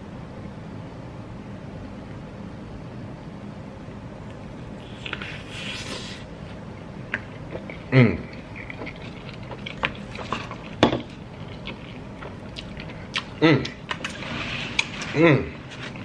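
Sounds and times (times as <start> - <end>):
wet chewing and mouth clicks: 7.1 - 14.1
person humming mmm: 7.8 - 8.4, 13.1 - 13.8, 15.0 - 15.7.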